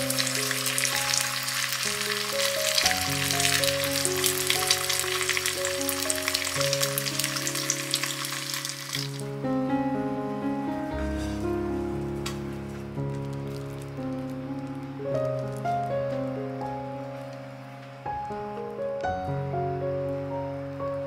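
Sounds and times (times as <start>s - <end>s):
bread sizzling in a pan: 0.0s - 9.2s
soft background music: 0.0s - 21.0s.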